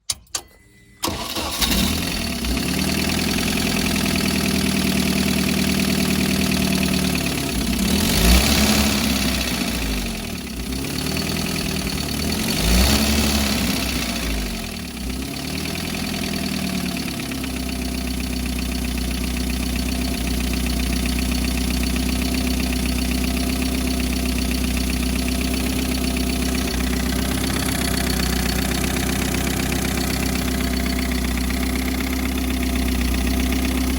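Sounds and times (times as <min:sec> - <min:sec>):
engine starting and revving: 0:01.0 - 0:17.6
engine knocking: 0:01.7 - 0:33.9.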